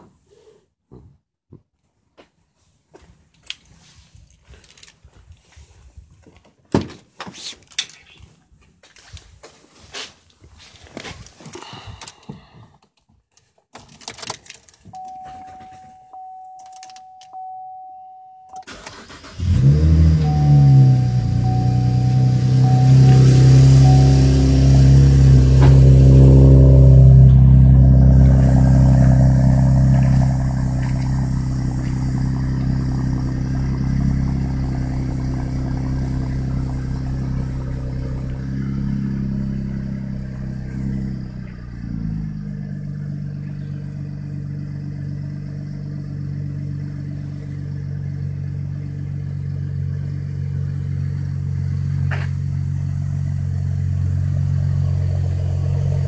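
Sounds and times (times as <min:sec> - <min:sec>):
car engine idling: 0:18.6 - 0:56.0.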